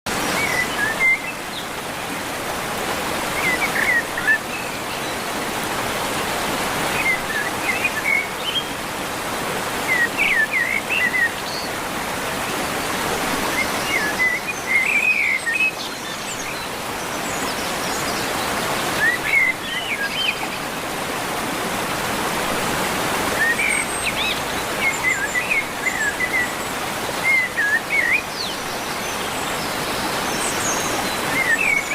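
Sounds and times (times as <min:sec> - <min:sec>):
rushing water: 0:00.1 - 0:31.9
birds chirping: 0:09.6 - 0:31.9.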